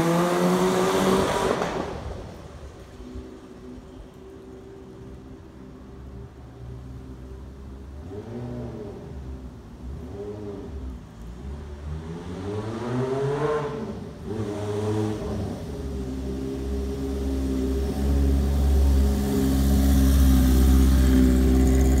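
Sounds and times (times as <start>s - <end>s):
motorcycle engine accelerating: 12.2s - 22.0s.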